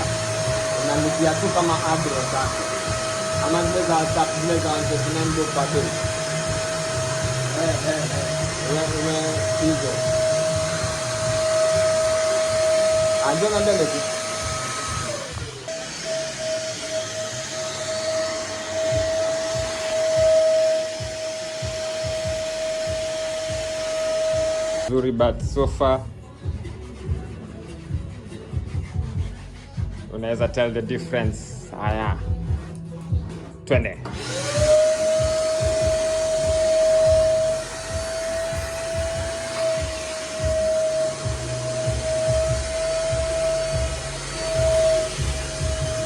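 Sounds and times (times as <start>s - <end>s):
low buffeting: 0.0s - 15.8s, 34.0s - 46.0s
vacuum cleaner motor whining: 0.0s - 24.9s, 34.0s - 46.0s.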